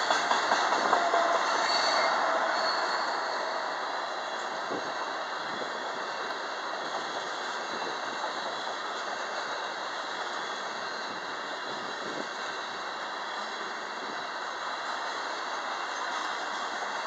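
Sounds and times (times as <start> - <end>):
train wheels rolling on rails: 0.0 - 17.0.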